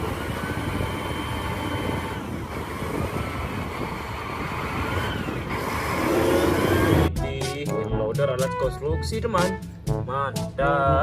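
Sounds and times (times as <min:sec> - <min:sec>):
heavy vehicle engine running: 0:00.0 - 0:07.2.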